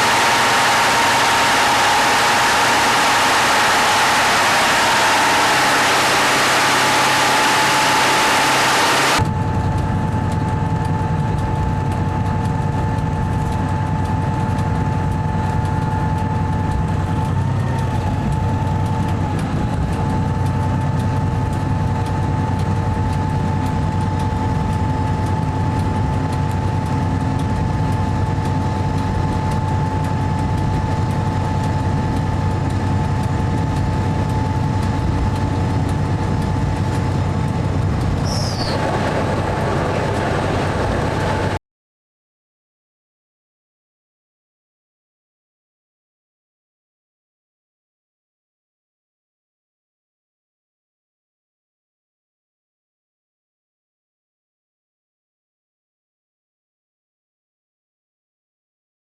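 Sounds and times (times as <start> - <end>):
loud hissing rush: 0.0 - 9.2, 38.2 - 41.6
diesel engine idling: 0.0 - 41.6
steady whine: 0.0 - 41.6.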